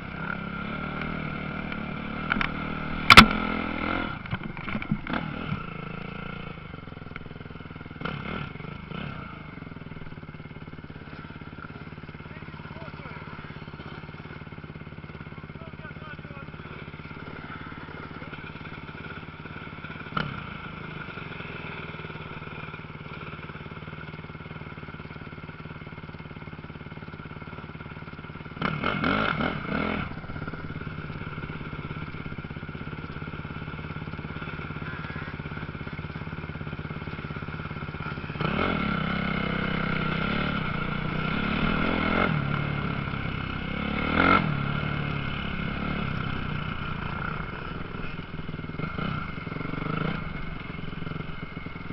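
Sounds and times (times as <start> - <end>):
motocross bikes revving: 0.0 - 24.1, 26.3 - 51.9.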